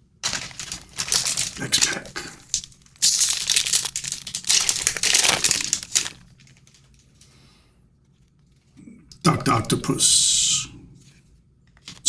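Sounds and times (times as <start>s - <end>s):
wrapper tearing and crinkling: 0.2s - 7.2s, 11.8s - 12.0s.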